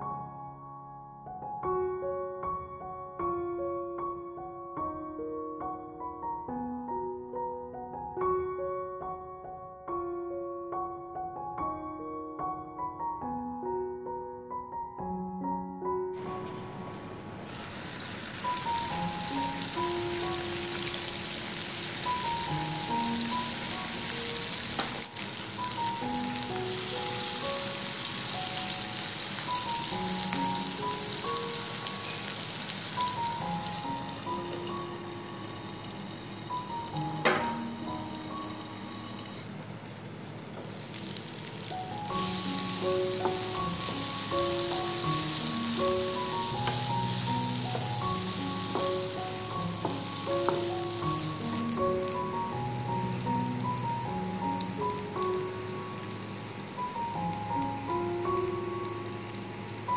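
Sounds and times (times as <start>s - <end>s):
background music: 0.0s - 39.3s, 41.5s - 59.9s
simple background melody: 0.0s - 39.4s, 41.5s - 59.9s
sausage sizzling in a frying pan: 16.2s - 59.9s
spatula knocking against pan: 37.3s - 37.6s.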